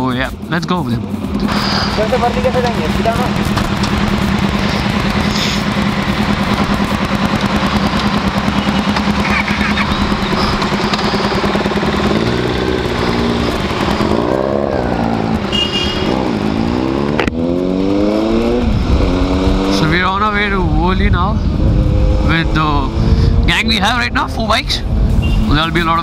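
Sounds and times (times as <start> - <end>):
motorcycle engine revving: 0.0 - 26.0
wind rush on microphone: 18.2 - 26.0.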